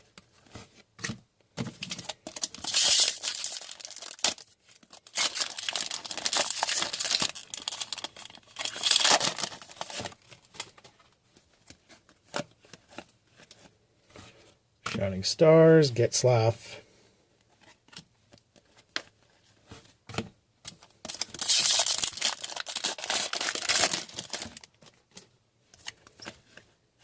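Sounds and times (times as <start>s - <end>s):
card pack wrappers tearing and crinkling: 1.9s - 10.8s, 20.8s - 25.0s.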